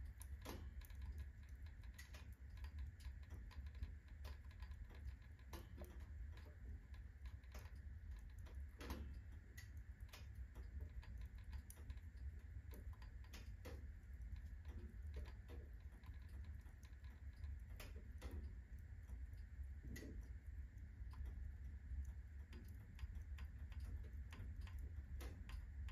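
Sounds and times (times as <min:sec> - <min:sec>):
fire crackling and snapping: 0:00.0 - 0:25.9.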